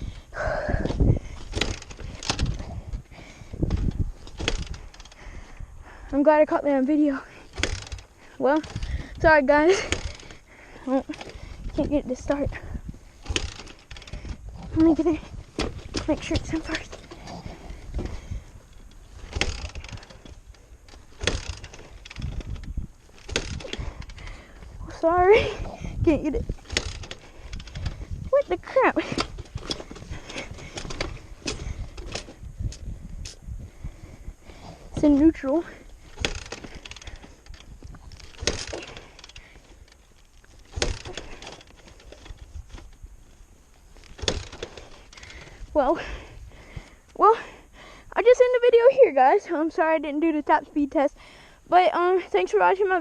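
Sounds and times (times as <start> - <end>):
kick lever turning engine over: 1.4 - 5.2, 7.5 - 10.4, 13.2 - 15.0, 15.6 - 24.6, 25.4 - 28.2, 29.0 - 33.4, 35.0 - 43.0, 44.0 - 45.6.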